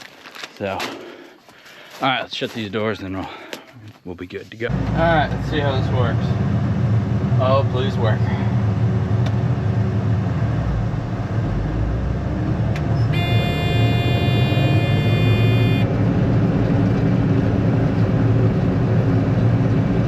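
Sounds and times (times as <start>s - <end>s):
combine engine drone: 4.7s - 20.0s
electronic warning tone: 13.1s - 15.9s.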